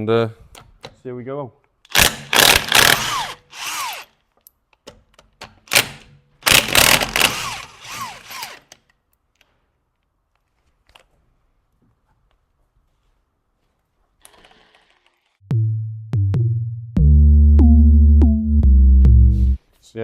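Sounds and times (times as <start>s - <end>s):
impact wrench whirring: 1.9s - 4.2s, 5.7s - 8.8s.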